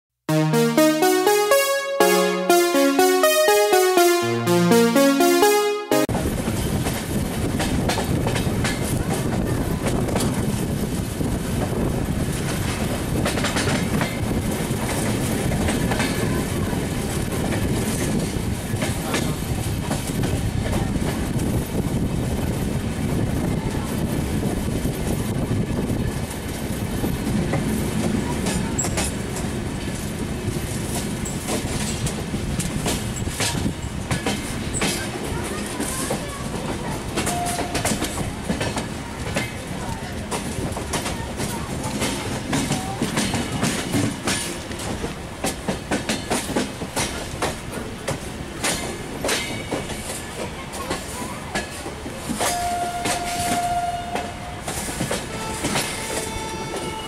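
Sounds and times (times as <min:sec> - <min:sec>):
electronic intro music: 0:00.3 - 0:06.2.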